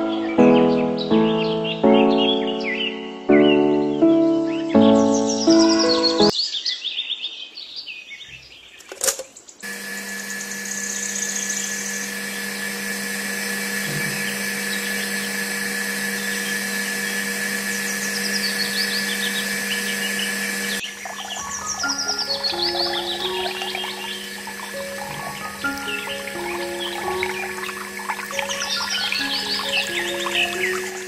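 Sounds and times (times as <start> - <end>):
toy motor whining: 9.6 - 31.0.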